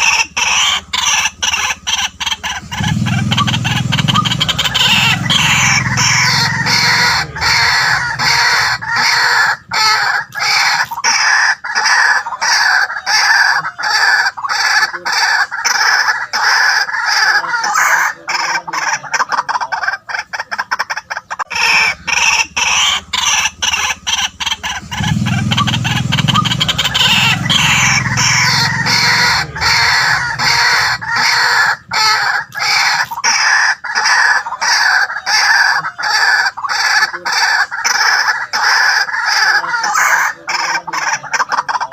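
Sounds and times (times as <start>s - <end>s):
waterhen harsh calls: 0.0s - 41.9s.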